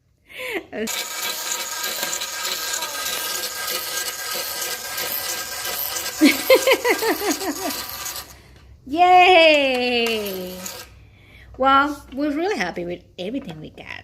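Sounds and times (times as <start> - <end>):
toy motor whirring: 0.8 - 8.6, 9.7 - 11.0.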